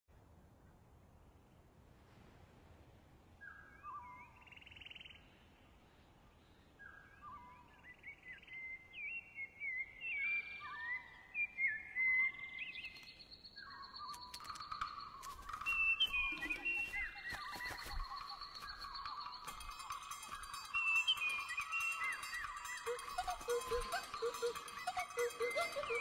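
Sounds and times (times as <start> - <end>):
birds chirping and whistling: 6.8 - 26.0
buzzy bird trill: 13.8 - 26.0.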